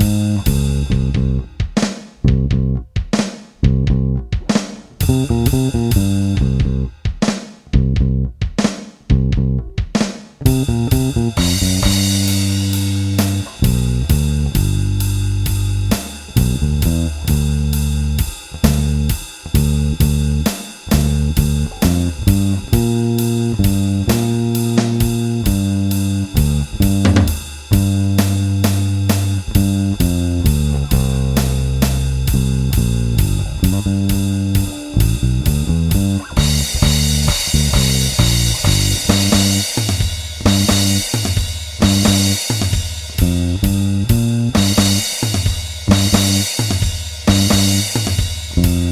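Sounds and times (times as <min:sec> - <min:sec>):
electric bass guitar: 0:00.0 - 0:01.6, 0:02.2 - 0:03.0, 0:03.6 - 0:07.0, 0:07.7 - 0:08.4, 0:09.1 - 0:39.8, 0:40.4 - 0:41.2, 0:41.8 - 0:42.5, 0:43.1 - 0:45.3, 0:45.9 - 0:46.6, 0:47.3 - 0:48.0, 0:48.6 - 0:48.9
drum beat: 0:00.0 - 0:48.9
cymbal crash: 0:36.4 - 0:43.2.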